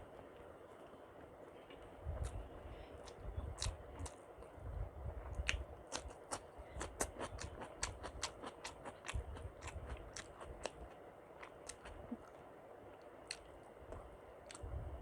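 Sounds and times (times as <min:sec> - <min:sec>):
person chewing food: 0:01.7 - 0:04.6, 0:05.2 - 0:14.8
wet mouth clicks and smacks: 0:03.0 - 0:04.2, 0:05.3 - 0:10.8, 0:13.0 - 0:13.6, 0:14.5 - 0:14.7.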